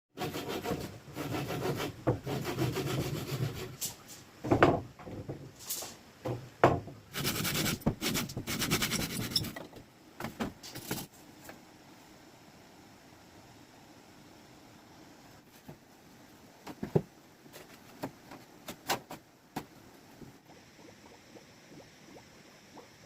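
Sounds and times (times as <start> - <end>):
hand tool scraping wood: 0.2 - 4.1, 7.1 - 9.7
sharp knocks: 4.4 - 5.4, 6.2 - 7.0.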